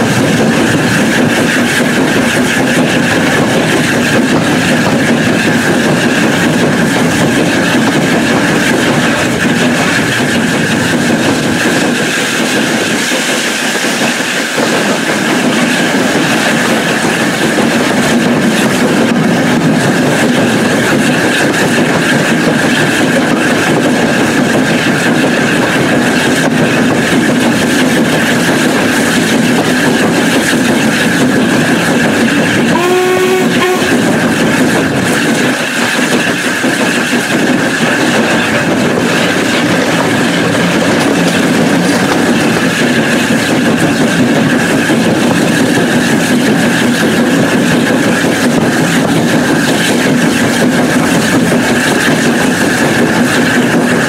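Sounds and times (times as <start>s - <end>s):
wheels rumbling on rails: 0.0s - 54.0s
wind noise: 0.0s - 54.0s
locomotive whistle: 31.7s - 35.5s.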